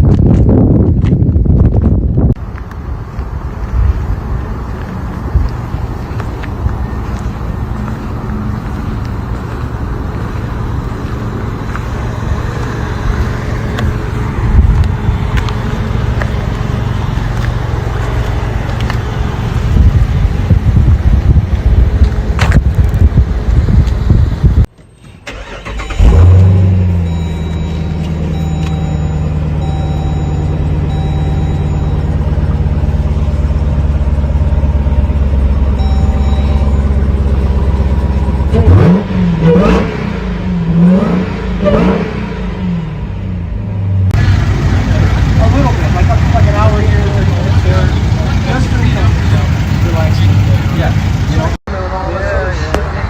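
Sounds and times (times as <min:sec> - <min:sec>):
car engine rumble: 0:00.0 - 0:53.0
road noise: 0:00.0 - 0:53.0.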